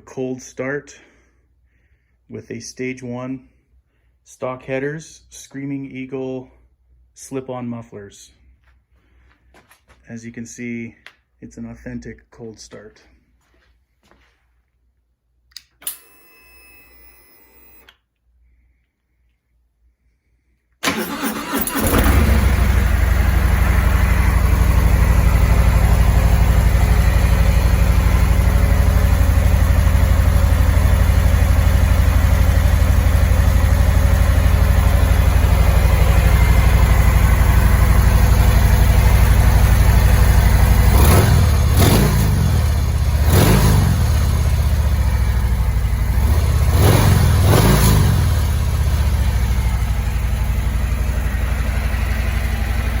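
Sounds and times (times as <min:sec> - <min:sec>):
motorcycle engine idling: 0:21.0 - 0:53.0.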